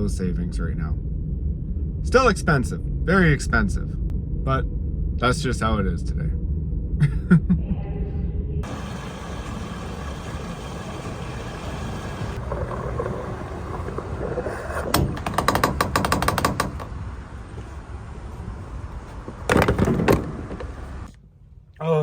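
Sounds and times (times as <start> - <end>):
low vehicle rumble: 0.0 - 21.2
ratchet-like mechanical clicking: 14.2 - 16.9.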